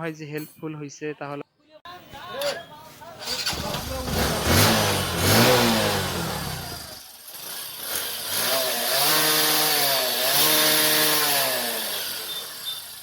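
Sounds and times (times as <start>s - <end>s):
motorcycle engine revving: 3.2s - 13.0s.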